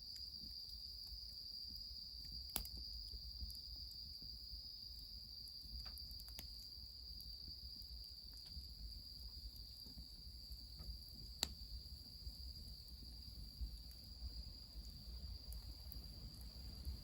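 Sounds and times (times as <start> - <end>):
crickets trilling: 0.0 - 17.0
wood fire crackling: 0.0 - 17.0.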